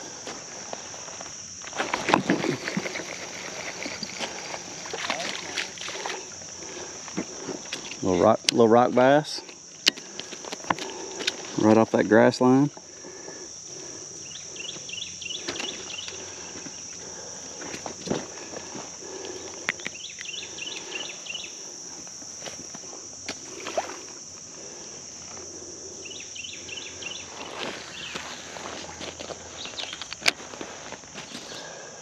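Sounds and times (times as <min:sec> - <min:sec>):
insects droning: 0:00.0 - 0:32.0
footsteps wading in shallow water: 0:01.7 - 0:06.4.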